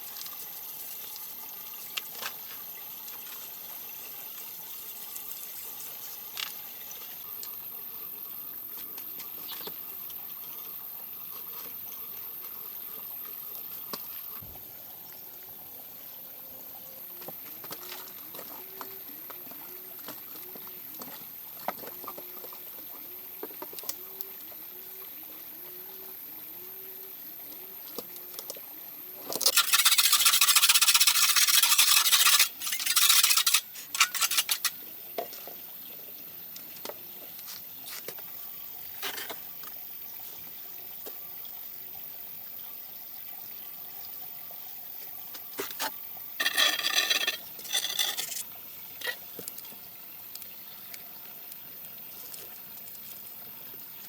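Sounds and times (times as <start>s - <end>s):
water pouring: 29.4s - 35.7s, 37.9s - 54.0s
wet cement mix stirred: 29.5s - 34.8s.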